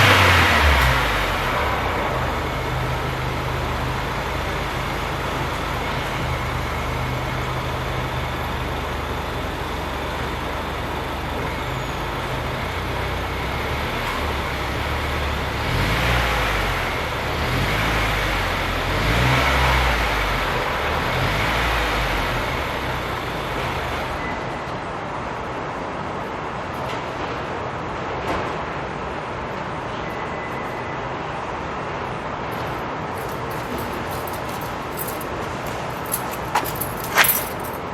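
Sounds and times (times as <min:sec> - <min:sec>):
car engine idling and revving: 0:00.0 - 0:24.6, 0:33.2 - 0:37.8.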